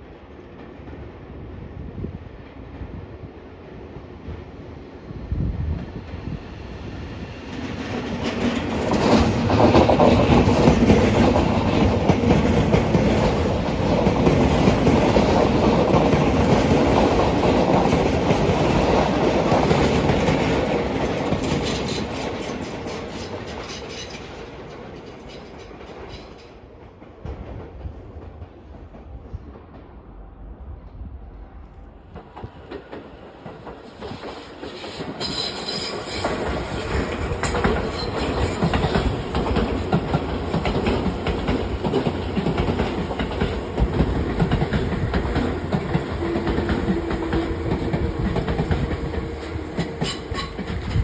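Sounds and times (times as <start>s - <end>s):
electric train passing: 0.0s - 51.0s
wheels clacking over rail joints: 7.5s - 27.8s, 32.2s - 51.0s.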